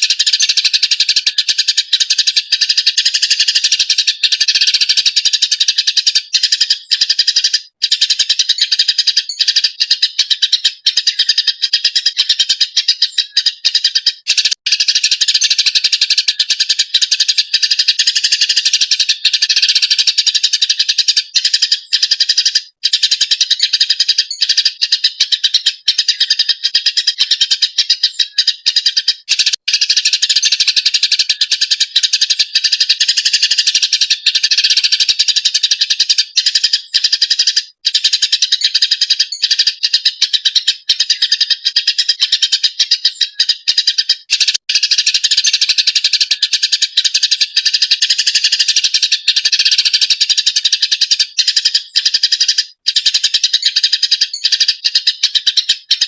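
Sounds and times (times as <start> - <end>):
sparrow chattering: 0.0 - 56.0.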